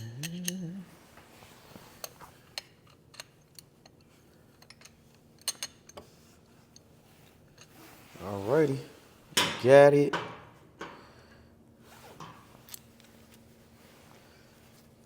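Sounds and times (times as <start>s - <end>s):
hand tools and metal parts clicking: 0.0s - 0.8s
person humming: 0.0s - 1.0s.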